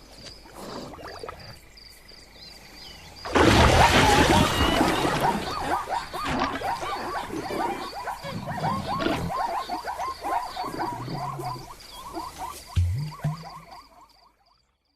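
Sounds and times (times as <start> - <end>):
faint high chirping: 4.4 - 14.6.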